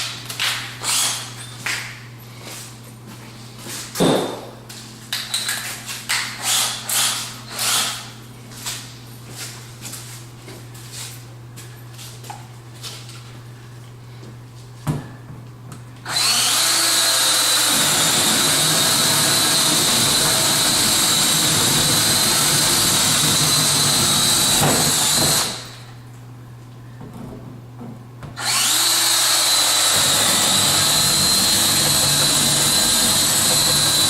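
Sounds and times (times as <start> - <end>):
power drill whining: 0.8 - 1.2, 16.1 - 25.8, 28.4 - 34.0.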